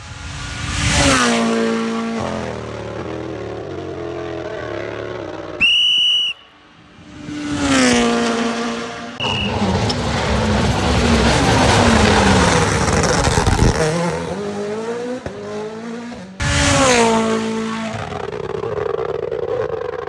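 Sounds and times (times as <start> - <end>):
rally cars passing at speed: 0.0 - 5.6, 6.7 - 20.0
whistle blast: 5.6 - 6.6, 9.2 - 9.9.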